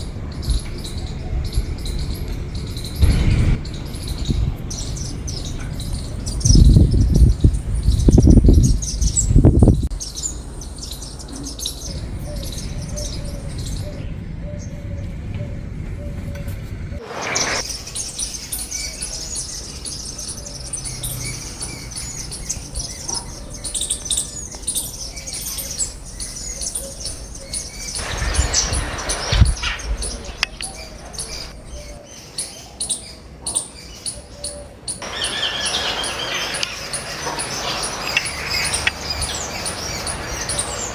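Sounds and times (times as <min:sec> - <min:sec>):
deep low rumbling bursts: 0:00.0 - 0:18.9, 0:24.9 - 0:31.9
small birds chirping: 0:00.0 - 0:40.9.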